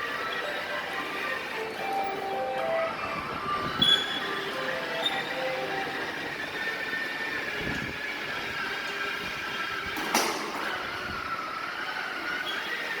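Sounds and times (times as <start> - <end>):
toy motorcycle motor whine: 10.8 - 13.0.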